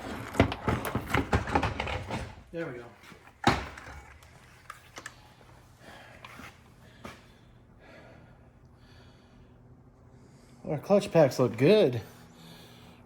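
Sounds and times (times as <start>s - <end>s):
faint breathing: 5.2s - 10.7s, 12.0s - 13.0s.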